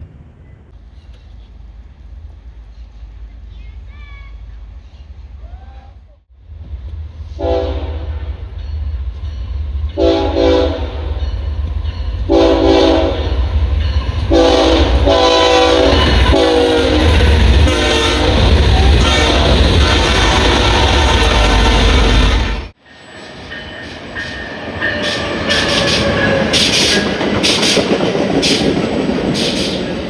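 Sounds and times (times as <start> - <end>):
passing train rumble: 0.0 - 30.0
train air horn blasts: 7.3 - 8.5, 10.0 - 11.2, 12.3 - 13.4, 14.3 - 22.7.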